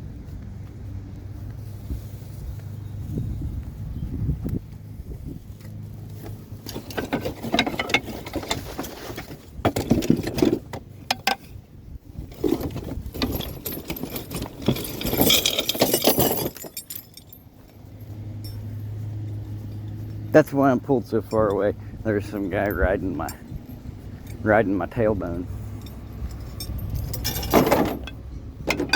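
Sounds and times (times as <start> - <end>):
scrap metal clattering: 6.4 - 11.6, 12.2 - 17.4, 25.4 - 28.9.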